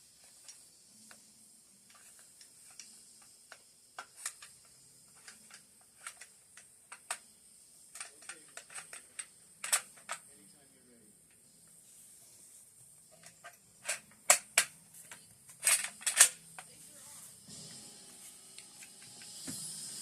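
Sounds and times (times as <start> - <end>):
rifle bolt metal clicks: 15.6 - 16.4.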